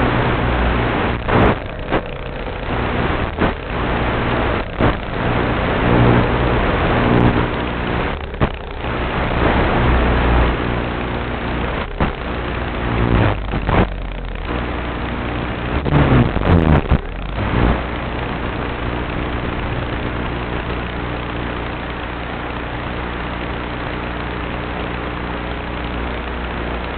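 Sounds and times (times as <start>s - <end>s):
model airplane motor running: 0.0s - 26.9s.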